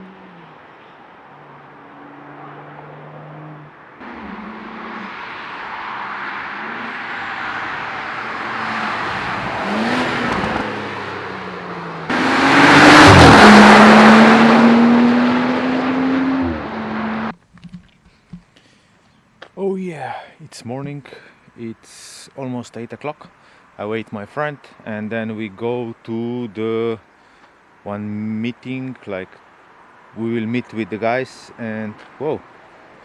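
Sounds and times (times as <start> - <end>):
cars revving: 1.3 - 17.3
car sweeping past accelerating: 1.6 - 17.3.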